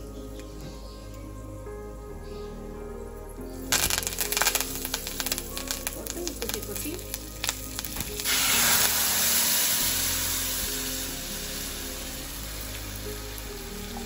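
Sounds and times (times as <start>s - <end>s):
paste sizzling in hot oil: 3.7s - 14.0s.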